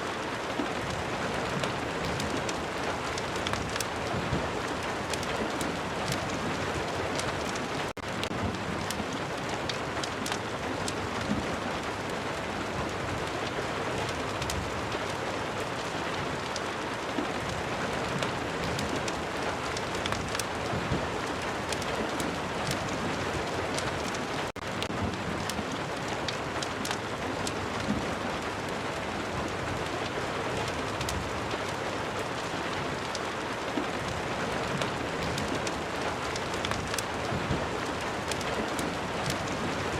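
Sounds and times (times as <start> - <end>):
steady rain: 0.0 - 39.9
small sharp crackles: 1.5 - 11.4, 18.2 - 28.0, 30.0 - 31.8, 32.4 - 39.9.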